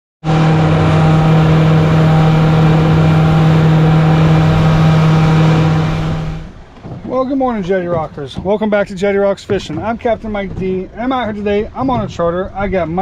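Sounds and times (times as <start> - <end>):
rushing noise: 0.2 - 6.6
boat engine droning: 0.2 - 7.5.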